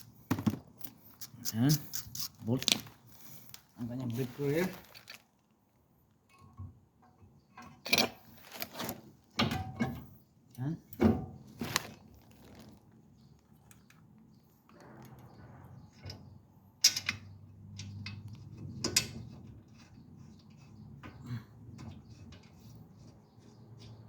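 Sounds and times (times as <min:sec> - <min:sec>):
metal bolt and tools clicking: 0:16.8 - 0:19.2.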